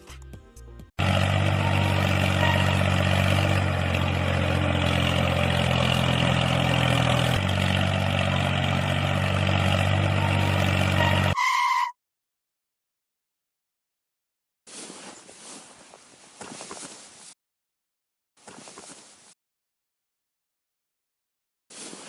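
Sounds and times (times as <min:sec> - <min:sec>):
engine idling: 0:01.0 - 0:11.4.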